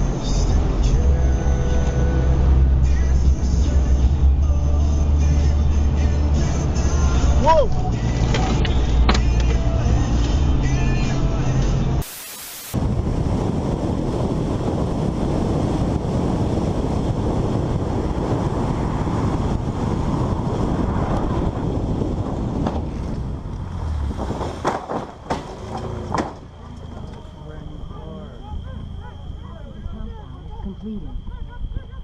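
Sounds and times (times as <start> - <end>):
road noise: 0.0 - 32.0
wind buffeting microphone: 12.8 - 25.3
sharp knocks: 24.4 - 26.4.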